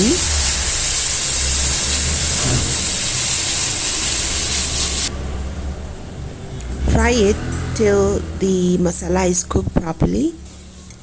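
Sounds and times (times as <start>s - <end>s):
hot oil sizzling: 0.0s - 5.1s.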